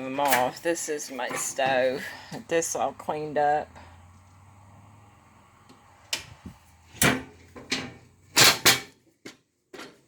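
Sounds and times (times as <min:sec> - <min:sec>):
cabinet doors and drawers banging: 0:06.1 - 0:09.0.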